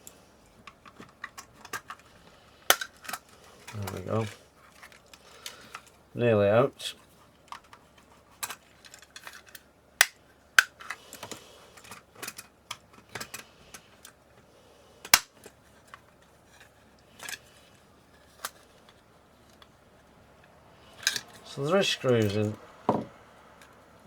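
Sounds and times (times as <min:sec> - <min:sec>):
plastic parts clicking and snapping: 0:00.6 - 0:06.0, 0:07.4 - 0:14.2, 0:15.0 - 0:19.7, 0:20.4 - 0:21.4.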